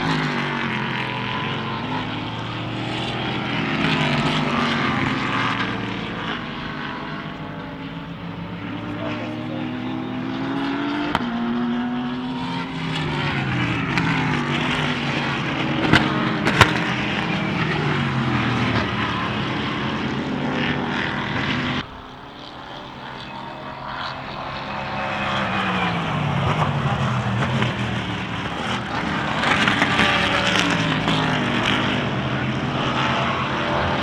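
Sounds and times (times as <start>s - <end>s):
race car engines passing: 0.0s - 34.0s
sharp cracks: 15.8s - 17.6s.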